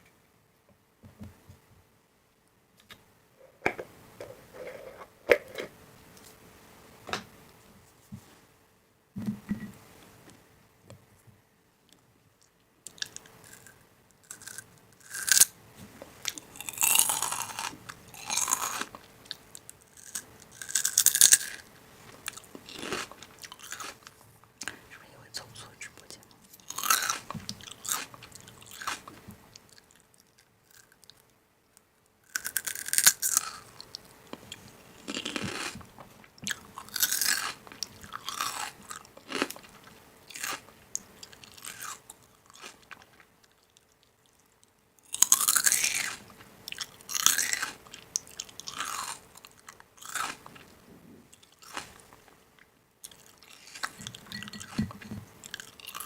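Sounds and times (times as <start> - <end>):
crunching and chewing crisp food: 11.9 - 56.0.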